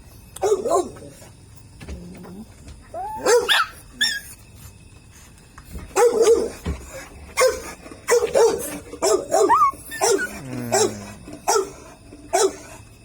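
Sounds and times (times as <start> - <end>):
small dog barking: 0.4 - 1.0, 3.2 - 4.2, 6.0 - 6.5, 7.4 - 12.6.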